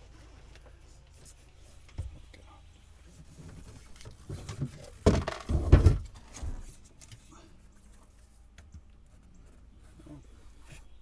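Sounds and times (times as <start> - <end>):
faint handling noises: 0.0 - 11.0.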